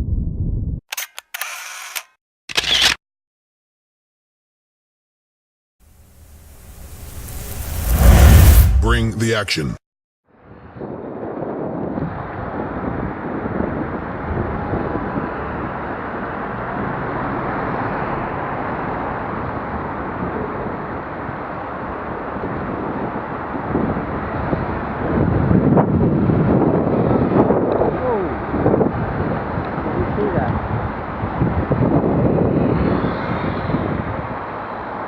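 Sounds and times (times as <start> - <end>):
road noise of vehicles driving: 12.0 - 35.0.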